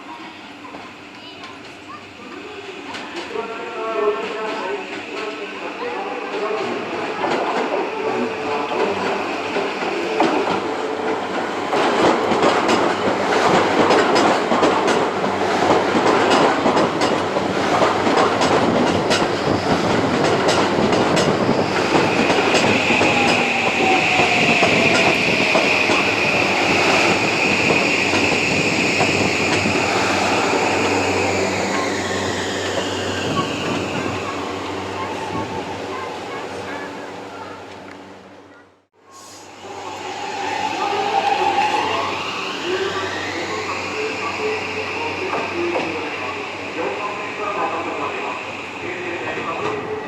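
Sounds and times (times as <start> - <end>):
train wheel clatter: 6.3 - 35.6.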